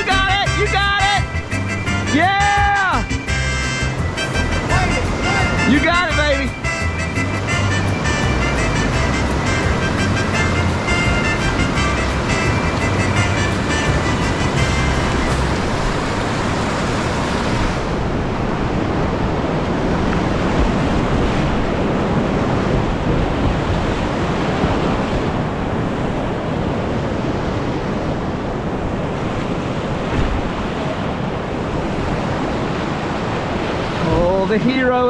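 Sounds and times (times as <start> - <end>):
creek rapids rushing: 0.0 - 35.0.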